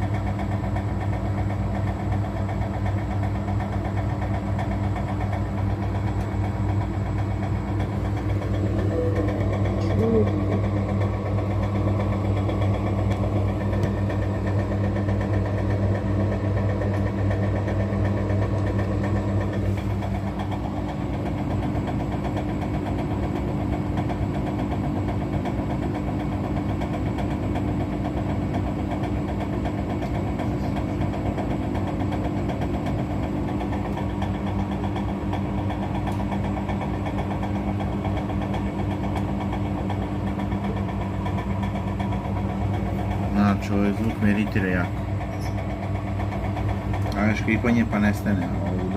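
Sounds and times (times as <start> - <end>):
washing machine motor hum: 0.0 - 48.9.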